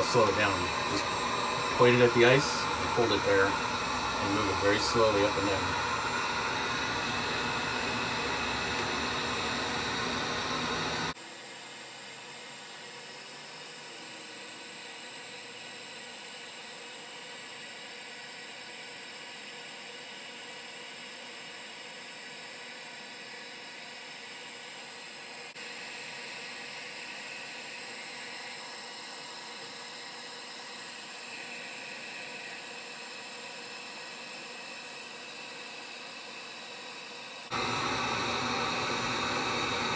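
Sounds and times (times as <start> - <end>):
heat gun blowing hot air: 0.0 - 11.2, 37.4 - 39.9.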